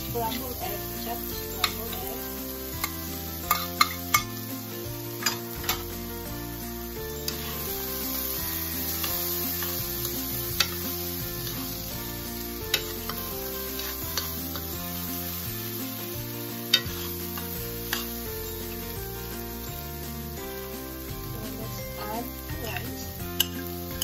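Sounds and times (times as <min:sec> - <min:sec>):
food sizzling in a frying pan: 0:00.0 - 0:24.0
metal spoon clicking on pan: 0:02.8 - 0:04.3, 0:05.2 - 0:05.8, 0:23.4 - 0:23.6.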